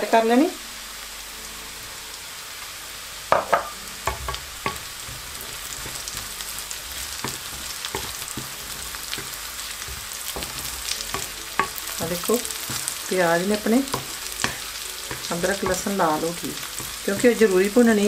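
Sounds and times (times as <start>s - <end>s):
vegetables sizzling in hot oil: 0.0s - 18.0s
spoon scraping a pan: 3.3s - 18.0s.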